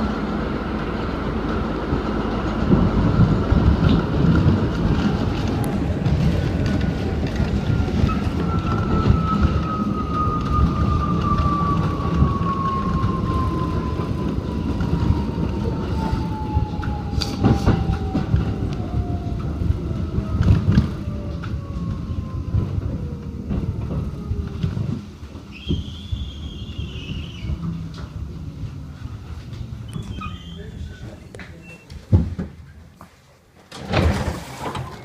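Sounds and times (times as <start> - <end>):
subway car rumbling on track: 0.0 - 35.0.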